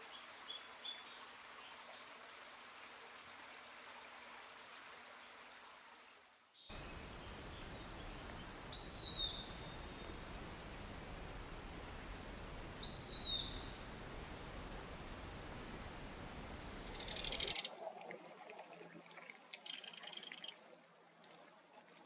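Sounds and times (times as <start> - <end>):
steady background hiss: 6.6 - 17.6
songbird calling: 6.7 - 11.4, 12.7 - 15.7, 16.6 - 17.6.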